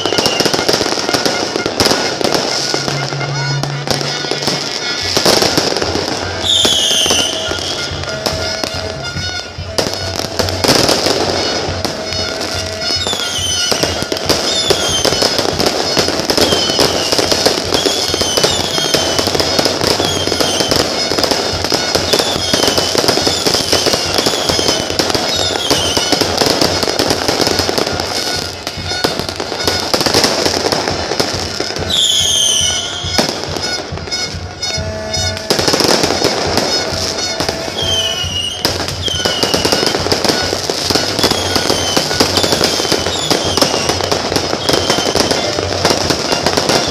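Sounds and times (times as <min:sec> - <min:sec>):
fireworks bangs and crackles: 0:00.0 - 0:46.9
fireworks falling whistles: 0:00.0 - 0:46.9.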